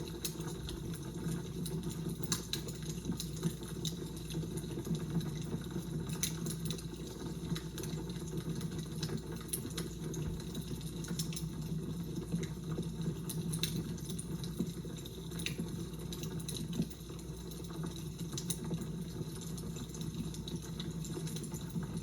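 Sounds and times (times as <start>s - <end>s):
fire crackling: 0.0s - 11.6s.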